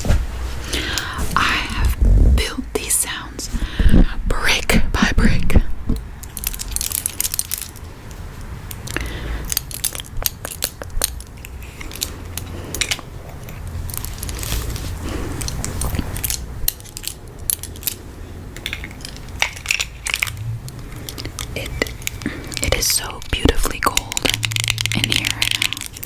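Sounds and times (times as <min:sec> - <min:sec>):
metal rings clinking: 0:06.2 - 0:07.9, 0:23.8 - 0:26.0.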